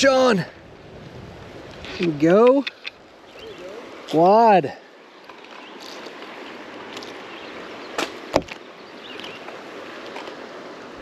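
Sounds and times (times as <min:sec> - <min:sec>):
water around a kayak: 0:00.0 - 0:11.0
wind: 0:00.0 - 0:11.0
knocks against kayak: 0:08.0 - 0:08.6.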